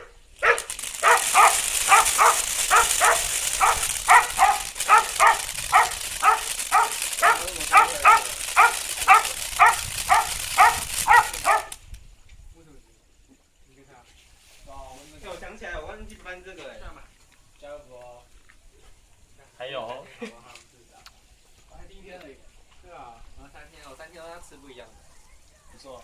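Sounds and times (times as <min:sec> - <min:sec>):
dog barking: 0:00.0 - 0:11.8
steady high hiss: 0:00.0 - 0:17.0, 0:17.6 - 0:26.0.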